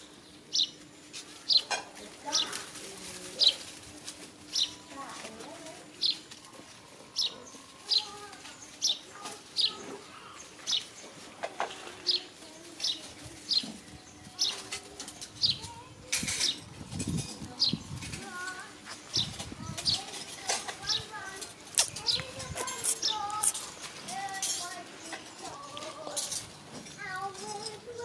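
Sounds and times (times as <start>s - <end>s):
small bird chirping: 12.0s - 27.2s.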